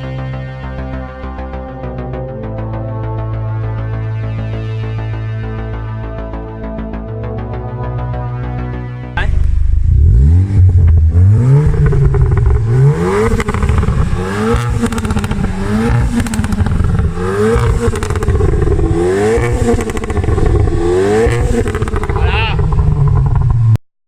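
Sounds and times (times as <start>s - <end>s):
car engine revving: 9.2s - 23.8s.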